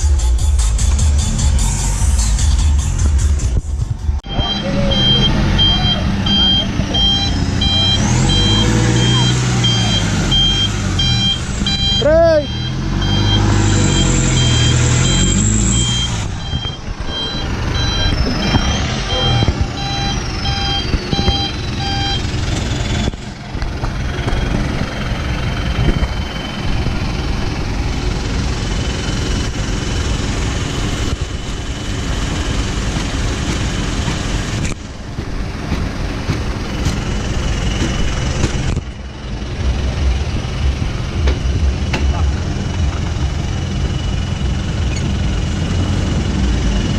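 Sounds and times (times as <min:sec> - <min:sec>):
truck engine droning: 0:00.0 - 0:46.9
short electronic beeps: 0:04.2 - 0:22.3.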